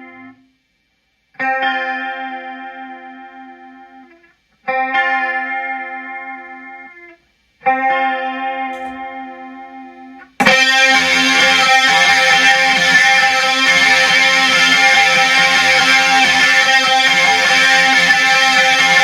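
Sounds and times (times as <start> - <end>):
clean electric guitar chords: 7.7 - 19.0
distorted guitar chord: 10.4 - 19.0.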